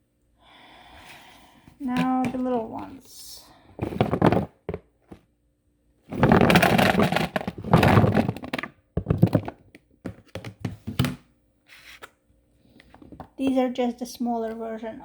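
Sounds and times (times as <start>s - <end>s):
potatoes tumbling into container: 1.8s - 2.7s, 3.8s - 5.2s, 6.1s - 11.1s.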